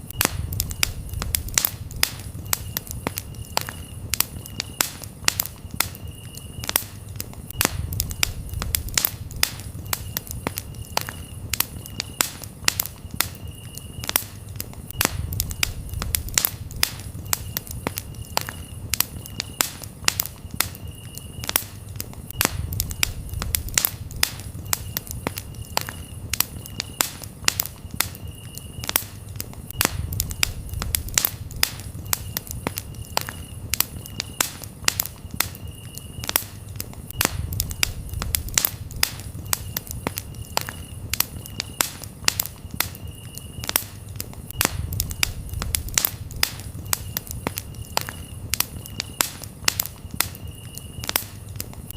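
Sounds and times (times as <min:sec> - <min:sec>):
campfire crackling and popping: 0:00.0 - 0:51.9
crickets chirping: 0:00.0 - 0:51.9.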